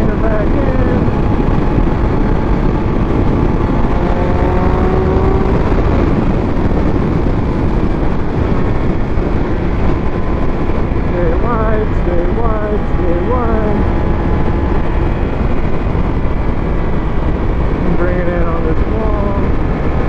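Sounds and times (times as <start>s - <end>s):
motorcycle engine running: 0.0s - 20.0s
wind rushing on microphone: 0.0s - 20.0s.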